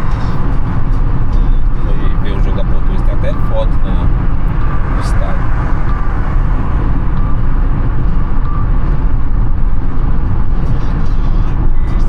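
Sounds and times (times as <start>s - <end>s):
car engine rumble: 0.0s - 12.0s
tyre-on-road noise: 0.0s - 12.0s.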